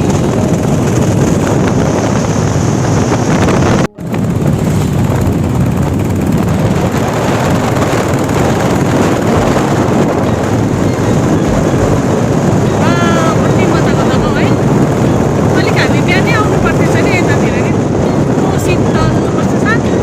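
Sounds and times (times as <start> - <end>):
motorcycle riding noise: 0.0 - 20.0
wind buffeting microphone: 0.0 - 20.0.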